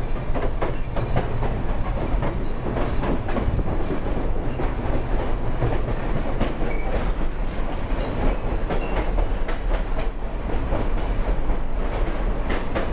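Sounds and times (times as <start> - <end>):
railroad cars rumbling: 0.0 - 12.9
wheels clacking over rail joints: 0.0 - 12.9.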